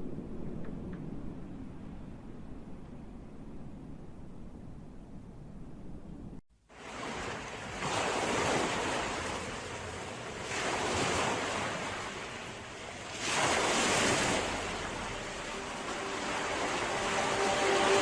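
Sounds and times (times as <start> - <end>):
ocean waves breaking: 6.7 - 18.0.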